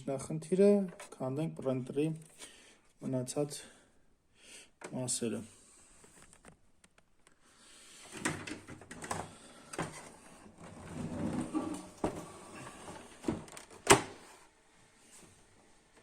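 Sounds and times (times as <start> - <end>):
plastic parts clicking and scraping: 8.1 - 12.2, 12.9 - 14.1.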